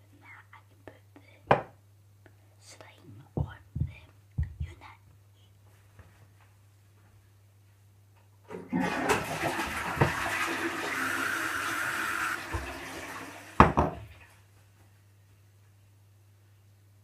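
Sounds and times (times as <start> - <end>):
toilet flushing: 8.5 - 14.4.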